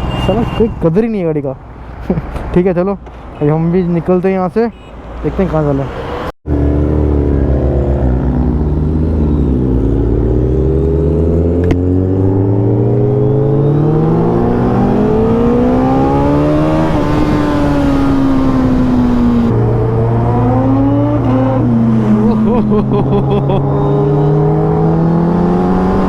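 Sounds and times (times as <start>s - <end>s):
motorcycle engine accelerating: 6.5s - 26.0s.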